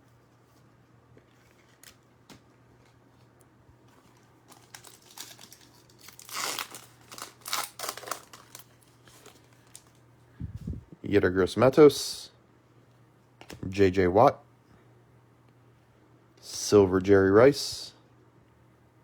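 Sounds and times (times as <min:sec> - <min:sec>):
wrapper tearing and crinkling: 0:04.0 - 0:10.0.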